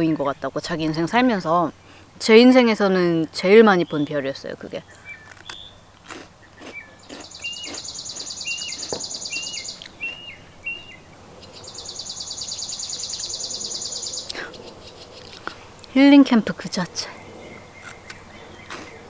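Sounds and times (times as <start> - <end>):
bird short chirps: 6.8 - 15.4.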